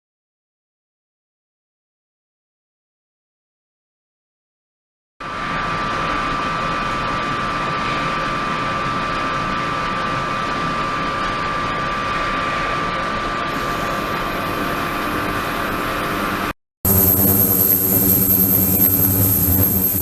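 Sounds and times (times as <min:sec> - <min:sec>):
steady high tone: 0:16.9 - 0:20.0
ultrasonic tank hissing: 0:16.9 - 0:20.0.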